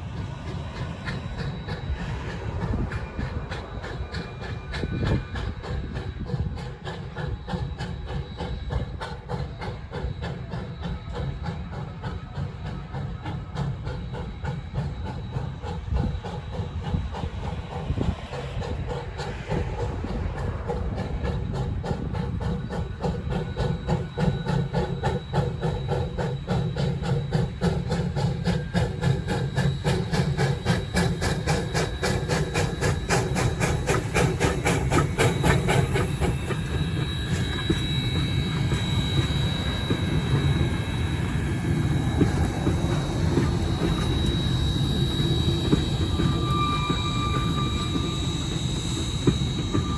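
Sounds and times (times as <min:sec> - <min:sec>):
train rumble: 0:00.0 - 0:49.9
train wheels clicking on rails: 0:00.0 - 0:49.9.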